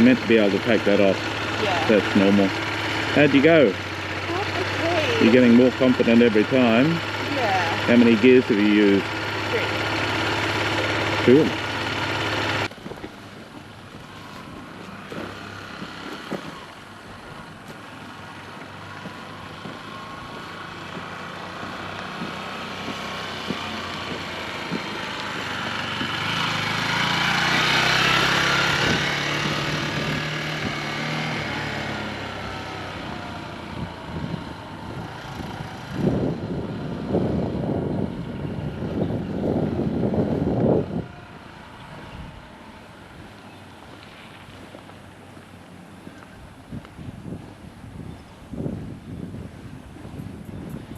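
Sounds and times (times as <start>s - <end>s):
motor vehicle passing: 0.0s - 50.9s
wind buffeting microphone: 12.6s - 44.8s, 46.0s - 50.9s.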